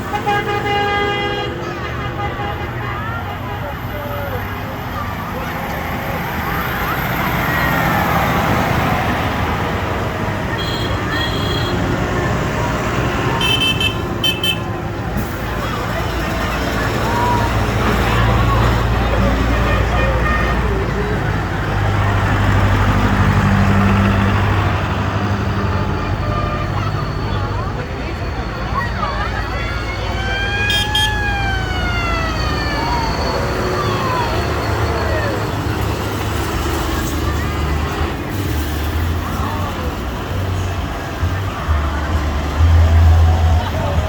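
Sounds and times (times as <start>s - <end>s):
tractor and vehicle engines: 0.0s - 44.0s
siren-like wail: 29.2s - 36.0s.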